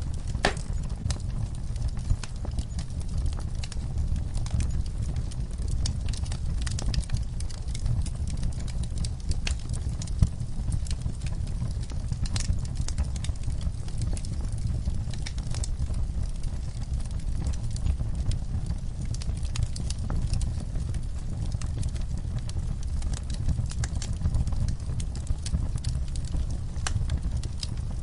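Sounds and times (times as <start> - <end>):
low rumble of flames: 0.0 - 28.0
wood fire crackling and popping: 0.0 - 28.0.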